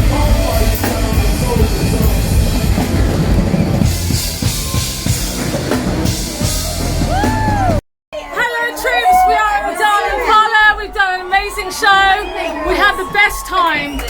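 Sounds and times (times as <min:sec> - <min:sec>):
drum kit beat: 0:00.0 - 0:07.8
live band playing: 0:00.0 - 0:07.8.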